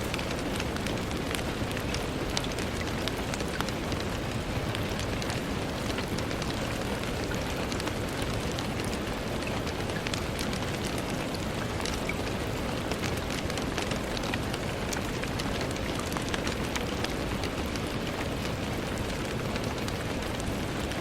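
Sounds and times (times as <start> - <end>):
rain on a window pane: 0.0 - 21.0
raindrops ticking against glass: 0.0 - 21.0.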